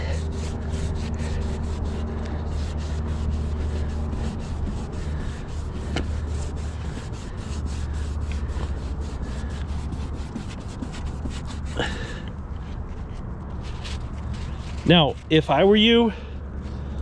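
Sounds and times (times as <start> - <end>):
paper towel scrubbing: 0.0 - 12.2.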